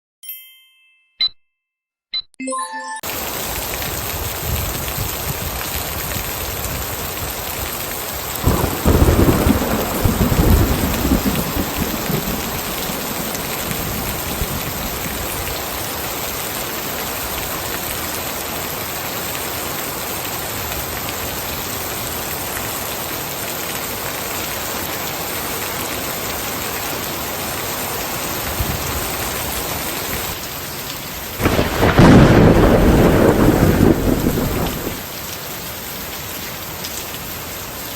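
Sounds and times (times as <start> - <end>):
heavy rain falling: 3.0 - 37.9
thunder rolling: 8.4 - 15.4, 31.4 - 35.0.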